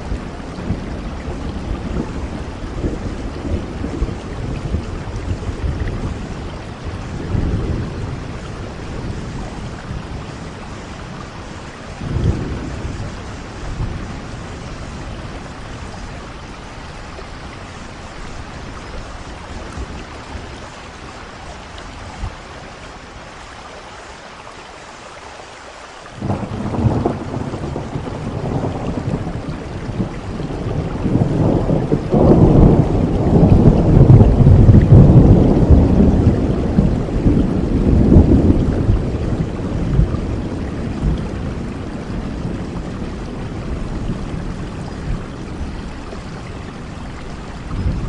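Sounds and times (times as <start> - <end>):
thunder rumbling: 0.0 - 22.8, 26.2 - 48.0
steady rain falling: 0.0 - 48.0.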